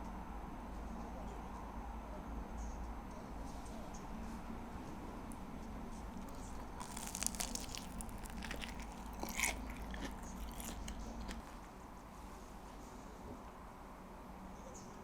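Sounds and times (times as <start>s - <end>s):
person chewing crisp food: 6.1s - 11.6s.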